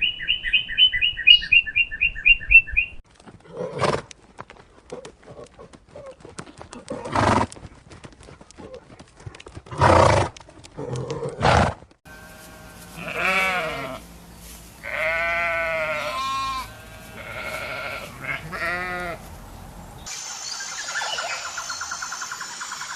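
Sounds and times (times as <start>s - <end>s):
livestock bleating: 12.1s - 14.2s, 14.8s - 19.3s.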